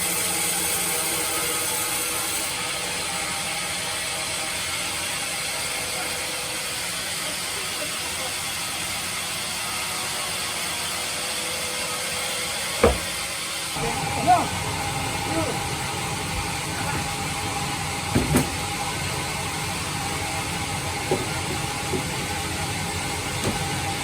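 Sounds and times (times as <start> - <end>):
bandsaw machine running: 0.0 - 24.0
sharp knock: 12.8 - 13.2.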